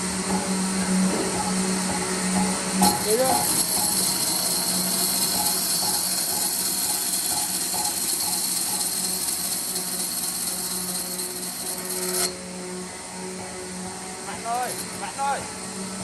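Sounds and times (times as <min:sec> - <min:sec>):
power tool running: 0:00.0 - 0:16.0.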